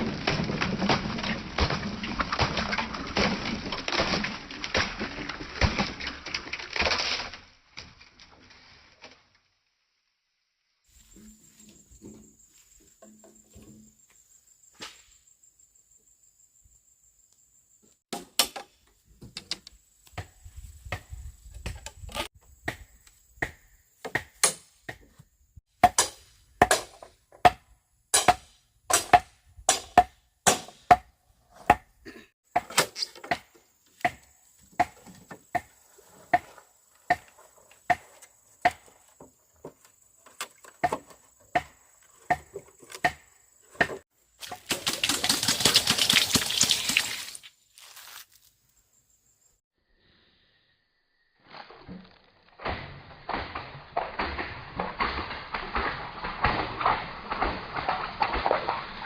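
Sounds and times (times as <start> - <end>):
blade chopping bamboo: 22.7 - 25.2, 25.8 - 31.1, 32.5 - 39.0, 51.9 - 59.0.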